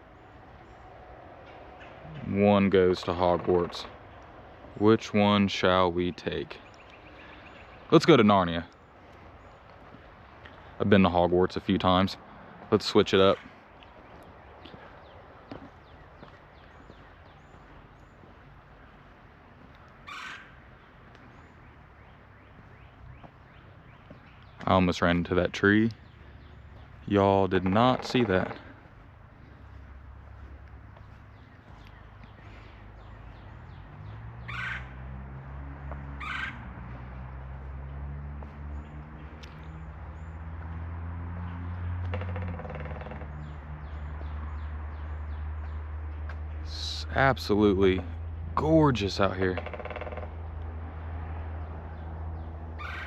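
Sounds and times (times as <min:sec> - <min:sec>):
small birds chirping: 0:00.0 - 0:35.1, 0:38.4 - 0:49.5
bird cawing: 0:06.6 - 0:07.9, 0:13.3 - 0:24.5, 0:34.4 - 0:35.1, 0:36.0 - 0:36.9, 0:41.9 - 0:45.2, 0:49.5 - 0:50.6, 0:52.7 - 0:53.0.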